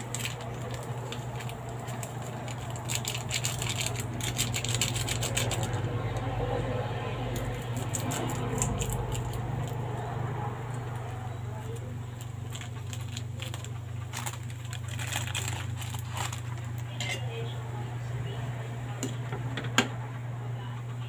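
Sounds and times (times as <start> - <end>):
noodles simmering crackling: 0.0 - 6.4, 7.3 - 17.7
gas burner hum: 0.0 - 21.0.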